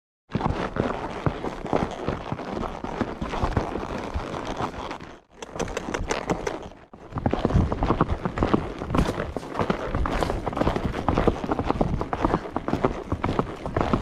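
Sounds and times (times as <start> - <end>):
horse hooves clip-clopping: 0.3 - 14.0.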